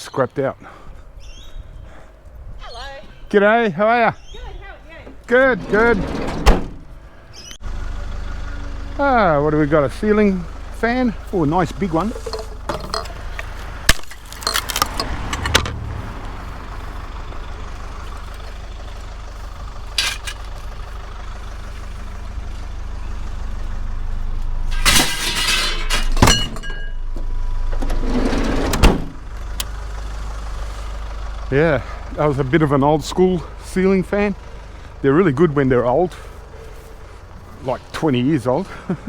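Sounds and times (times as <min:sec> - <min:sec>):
engine idling: 0:04.4 - 0:28.2, 0:29.0 - 0:39.0
scrap metal clattering and knocking: 0:05.1 - 0:07.1, 0:12.0 - 0:15.8, 0:19.5 - 0:20.6, 0:24.7 - 0:27.0.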